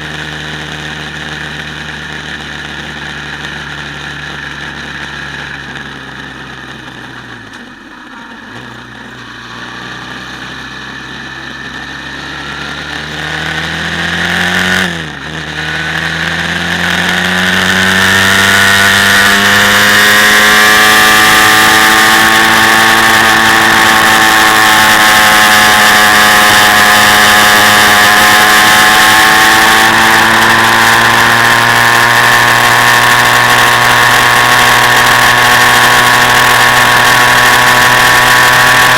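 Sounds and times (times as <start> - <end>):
quad bike engine revving: 8.3 - 38.9.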